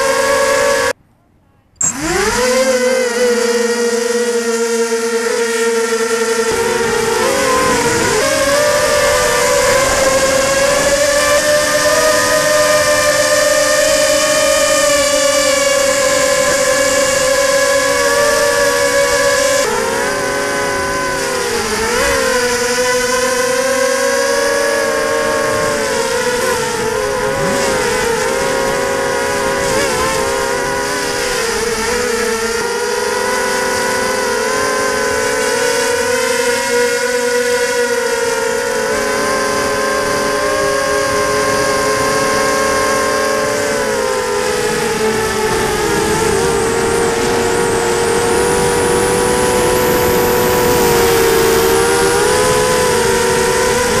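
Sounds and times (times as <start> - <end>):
quadcopter motors whining: 0.0 - 1.0, 1.8 - 54.0
wind rumbling on microphone: 6.5 - 23.2.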